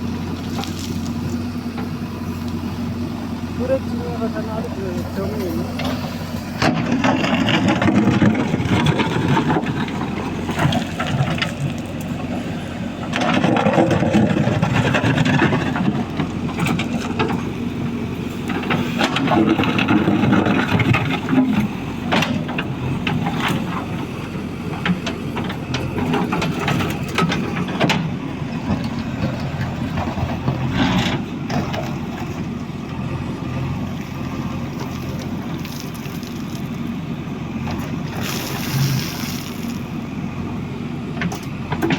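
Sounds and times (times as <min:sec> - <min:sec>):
engine running steadily: 0:00.0 - 0:41.9
knocks and clatter: 0:06.6 - 0:11.9.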